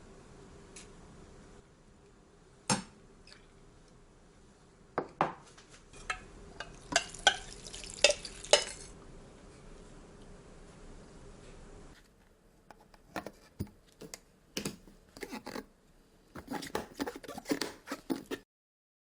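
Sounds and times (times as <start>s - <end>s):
utensils clinking against dishes: 16.4s - 18.4s.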